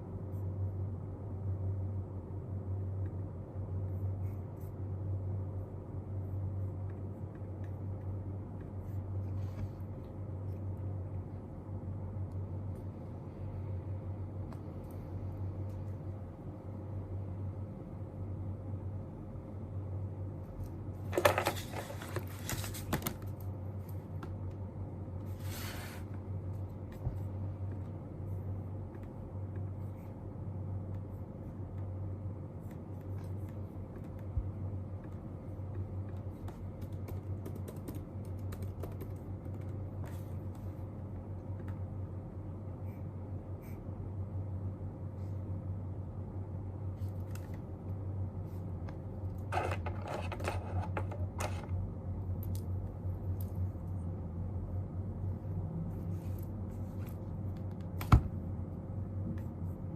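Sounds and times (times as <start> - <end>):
steady low hum: 0.0 - 59.9
paper rustles: 21.1 - 23.4
light taps and clicks at desk: 32.6 - 40.7.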